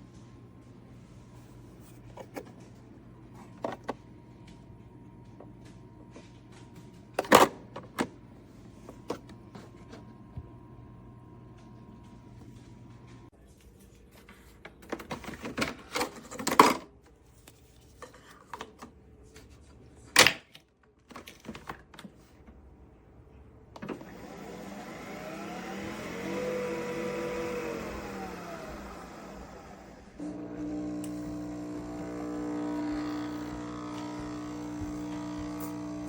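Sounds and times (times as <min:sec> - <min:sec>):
coffee machine motor whirring: 0:23.8 - 0:36.0.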